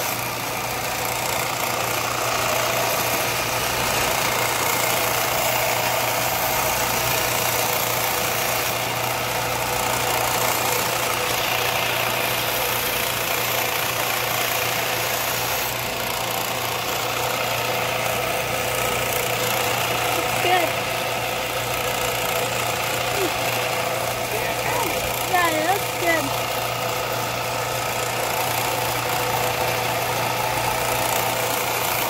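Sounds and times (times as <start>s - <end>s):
power tool motor running: 0.0s - 32.0s.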